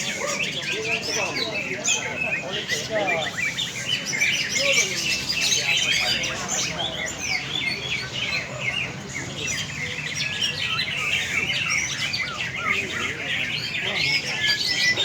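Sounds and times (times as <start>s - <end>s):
birds singing chirps and trills: 0.0s - 15.0s.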